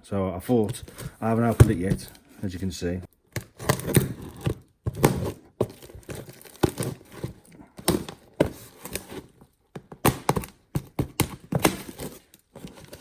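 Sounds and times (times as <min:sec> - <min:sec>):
parcel knocks and thuds: 0:00.8 - 0:02.2
packaging tearing and crinkling: 0:03.4 - 0:09.3, 0:10.0 - 0:13.0.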